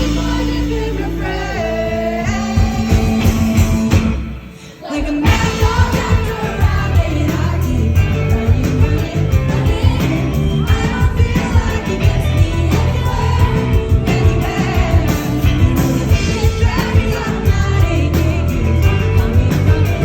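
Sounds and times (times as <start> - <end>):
drums: 0.0 - 20.0
live rock band: 0.0 - 20.0.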